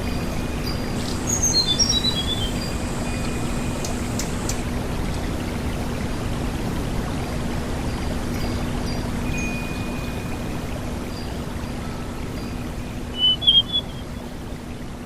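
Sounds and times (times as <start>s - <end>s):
bird whistling high notes: 13.1s - 14.1s.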